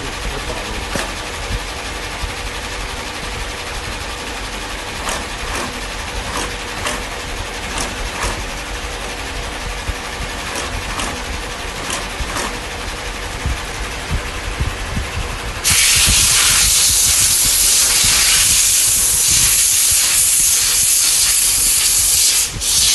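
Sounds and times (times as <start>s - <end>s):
machinery clicks and knocks: 0.0s - 19.8s
shoe-making machinery running: 0.0s - 22.9s
loud steady hiss: 15.3s - 22.9s.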